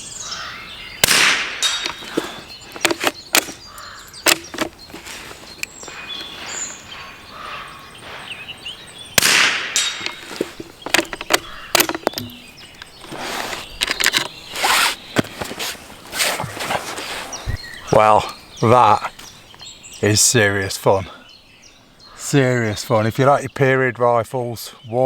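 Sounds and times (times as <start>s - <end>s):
birds chirping: 0.0s - 25.0s
rifle shot: 1.0s - 1.9s, 9.2s - 10.1s.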